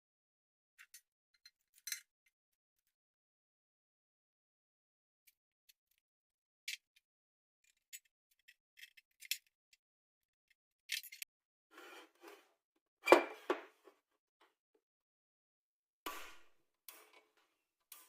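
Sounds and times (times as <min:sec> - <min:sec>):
metallic clicks and scrapes of tools: 0:00.8 - 0:02.1, 0:07.6 - 0:09.6, 0:10.9 - 0:12.4, 0:16.1 - 0:18.0.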